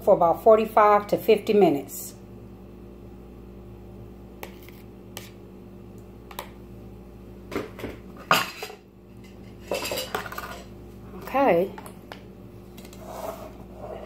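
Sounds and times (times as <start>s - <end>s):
metal kitchenware clattering: 8.2s - 10.7s.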